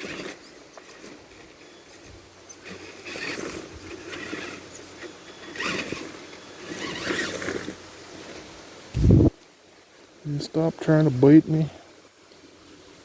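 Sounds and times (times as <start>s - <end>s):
toy truck crawling through brush: 0.0s - 9.1s.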